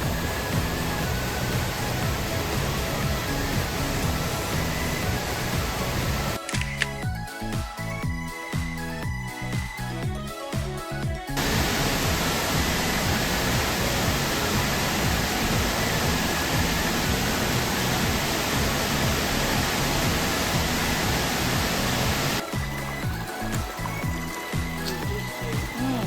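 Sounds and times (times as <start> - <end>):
falling water rushing: 0.0 - 6.4, 11.4 - 26.0
faint background music: 0.0 - 26.0.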